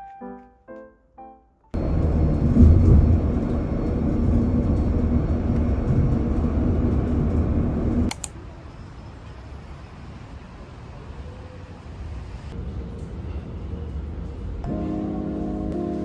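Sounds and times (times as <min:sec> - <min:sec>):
faint hum: 0:01.8 - 0:08.3
vehicle rumbling: 0:01.8 - 0:09.0
click: 0:08.1 - 0:08.3.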